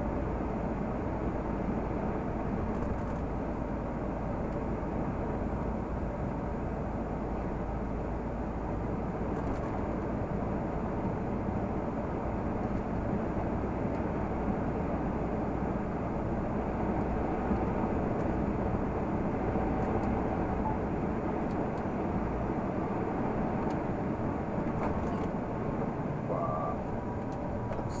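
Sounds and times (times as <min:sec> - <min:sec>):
road noise: 0:00.0 - 0:28.0
truck diesel engine running: 0:10.1 - 0:28.0.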